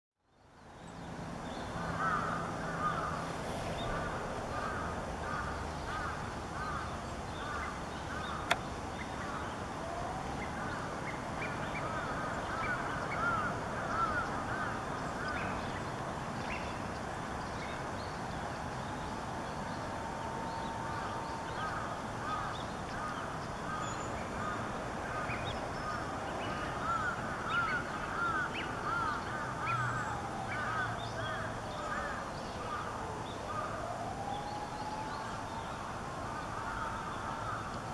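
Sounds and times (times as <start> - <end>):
outdoor background hiss: 0.3 - 37.9
birds calling: 3.8 - 9.6, 10.5 - 15.9, 21.0 - 32.8.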